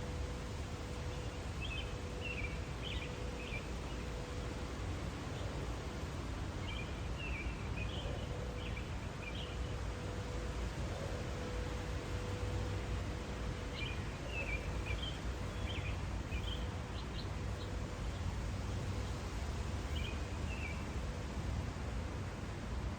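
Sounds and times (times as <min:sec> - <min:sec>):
faint steady hum: 0:00.0 - 0:22.9
wind rustle: 0:00.0 - 0:22.9.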